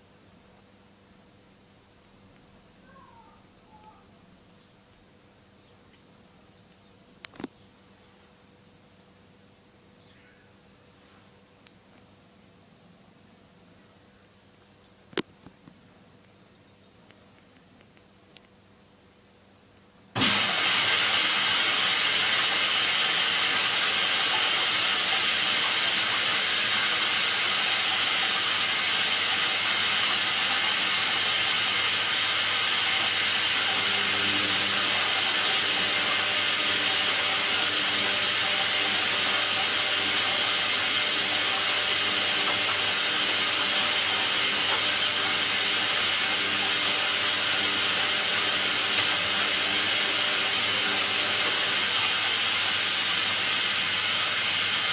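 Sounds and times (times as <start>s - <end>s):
water hissing into washing machine: 20.2s - 54.9s.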